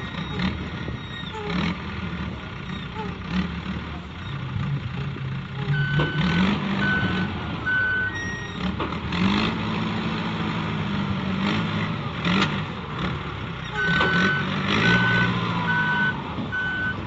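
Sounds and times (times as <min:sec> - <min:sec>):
diesel engine revving: 0:00.0 - 0:17.0
reversing alarm beeps: 0:05.7 - 0:08.6, 0:13.8 - 0:17.0.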